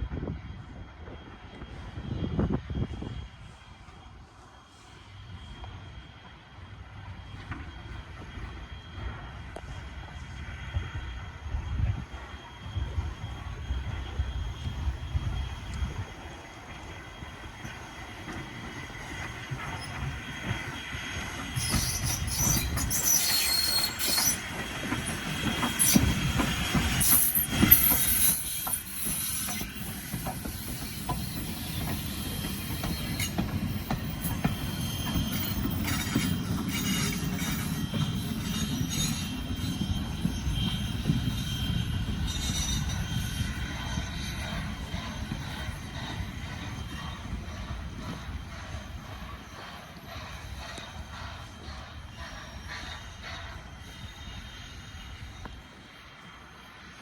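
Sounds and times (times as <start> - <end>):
train passing on rails: 0.0 - 57.0
wheel squeal: 16.7 - 55.6.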